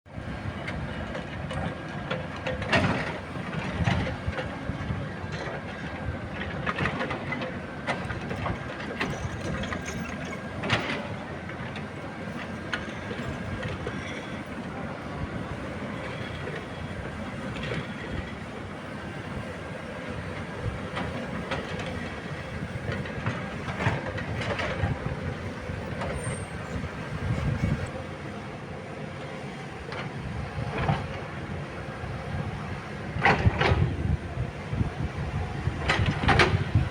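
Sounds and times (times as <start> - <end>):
excavator engine running: 0.2 - 36.9.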